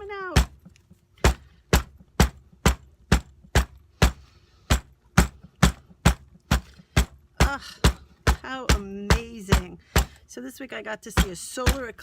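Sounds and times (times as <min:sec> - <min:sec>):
hammer pounding on paper: 0:01.2 - 0:10.2.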